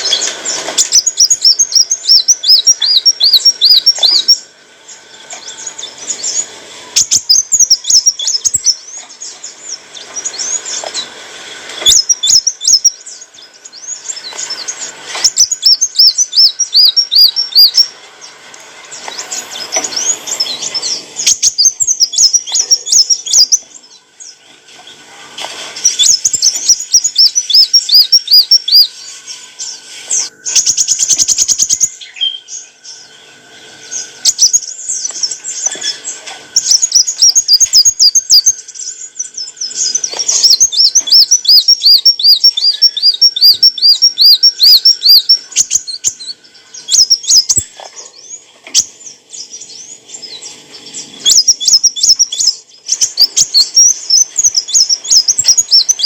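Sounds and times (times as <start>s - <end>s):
bird high rapid chirping: 0.0s - 11.1s, 11.8s - 25.0s, 25.8s - 56.0s
bird fast buzzy rattle: 33.9s - 49.0s.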